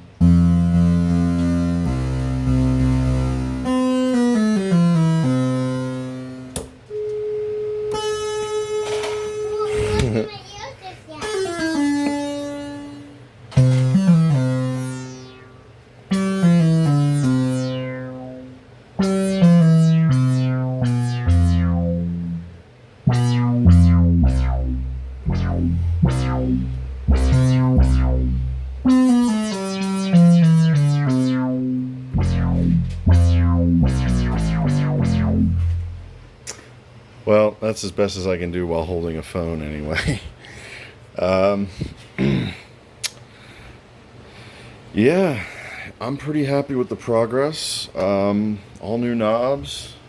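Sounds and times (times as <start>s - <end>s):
deep synthesizer bass notes: 0.0s - 6.6s, 13.6s - 36.4s
analog synthesizer notes: 0.0s - 6.7s, 11.3s - 36.4s.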